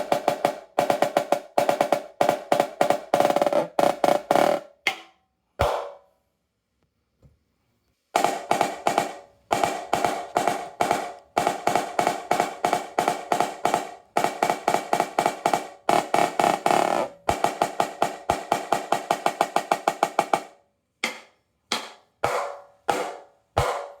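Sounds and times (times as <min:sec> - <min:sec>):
snare drum played with sticks: 0:00.0 - 0:06.0, 0:08.2 - 0:24.0.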